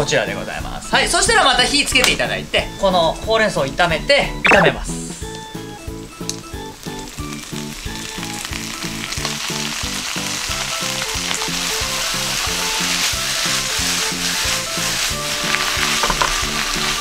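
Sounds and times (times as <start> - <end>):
food sizzling in a frying pan: 5.2 - 17.0.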